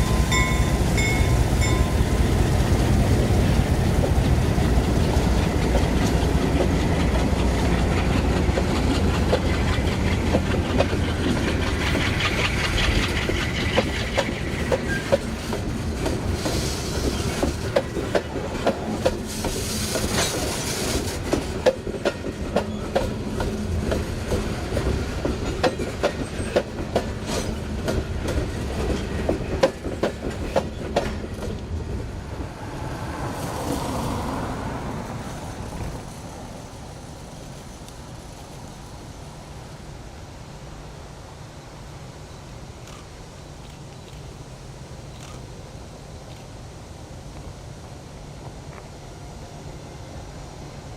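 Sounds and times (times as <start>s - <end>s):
wheel hiss: 0.0s - 21.6s
train wheels clicking over rail joints: 0.0s - 32.6s
diesel locomotive rumble: 0.0s - 39.6s.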